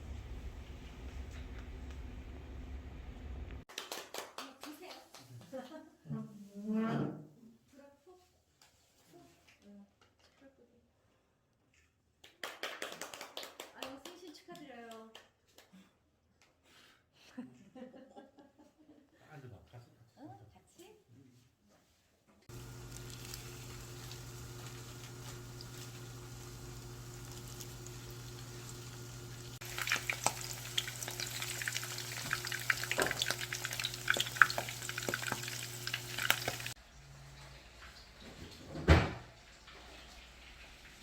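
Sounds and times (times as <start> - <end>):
oil frying with sharp pops: 22.5 - 36.8
steady hum: 22.5 - 36.8.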